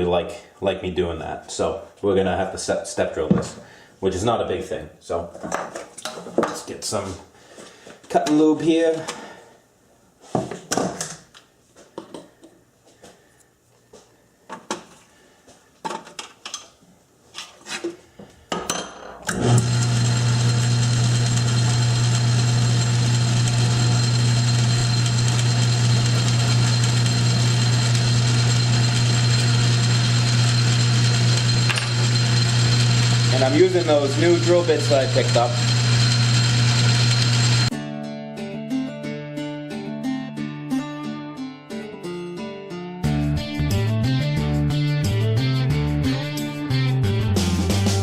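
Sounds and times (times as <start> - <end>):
lathe motor humming: 19.3 - 37.7.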